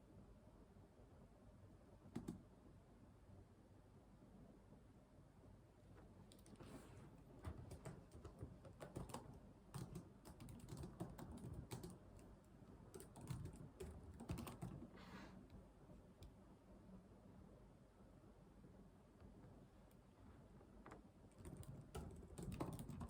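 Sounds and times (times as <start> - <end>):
computer keyboard typing: 2.1 - 2.4, 7.4 - 14.9, 21.3 - 23.0.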